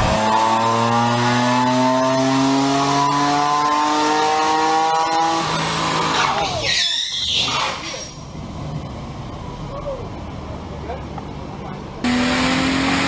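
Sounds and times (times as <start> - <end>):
car engine revving under load: 0.0 - 6.5, 12.0 - 13.0.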